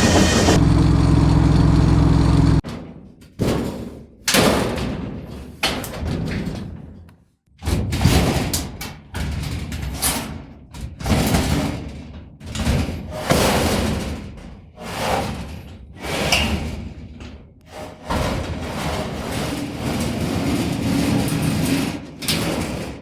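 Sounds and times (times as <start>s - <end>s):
machinery clanking impacts: 0.0s - 2.6s
steady machine sound: 0.0s - 2.6s.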